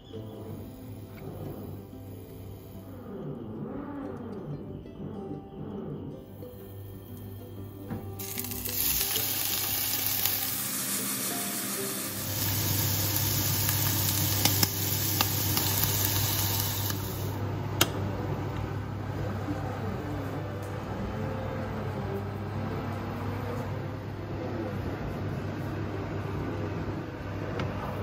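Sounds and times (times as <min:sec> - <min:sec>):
food sizzling in a pan: 0:08.2 - 0:17.4.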